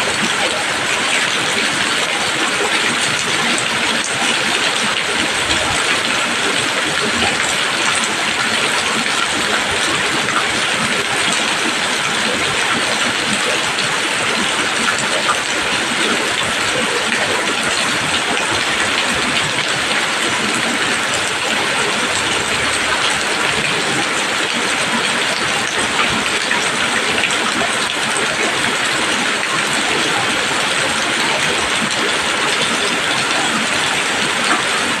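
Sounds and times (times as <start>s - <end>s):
rain falling on leaves: 0.0s - 35.0s.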